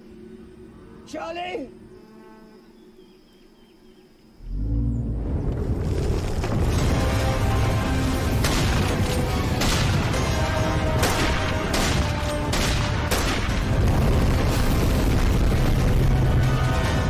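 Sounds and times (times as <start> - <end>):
film score music: 4.1 - 17.0
sharp bangs: 6.5 - 17.0.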